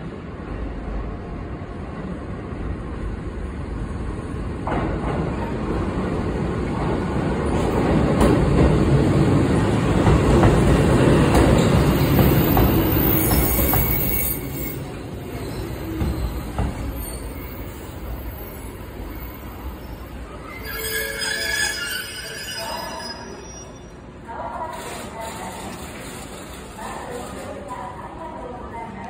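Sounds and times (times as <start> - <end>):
train wheels rumbling on rails: 3.0 - 20.3.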